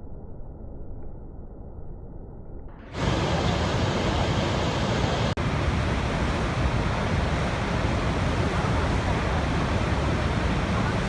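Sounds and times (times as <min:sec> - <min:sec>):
waterfall rushing: 0:03.0 - 0:11.0.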